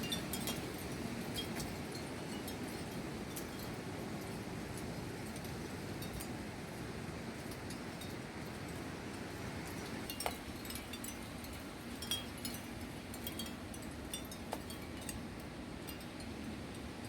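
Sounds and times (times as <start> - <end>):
wind chimes tinkling: 0.0 - 6.4, 7.4 - 17.0.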